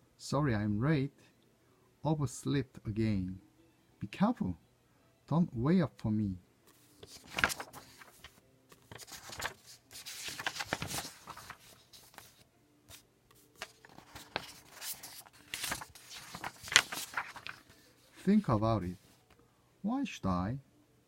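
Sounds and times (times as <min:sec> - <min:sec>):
paper pages rustling: 0:06.7 - 0:19.4.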